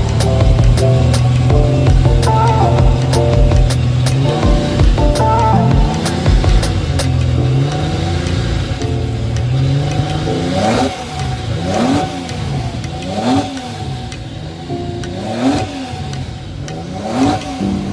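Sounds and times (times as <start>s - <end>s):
car engine revving: 0.0s - 17.6s.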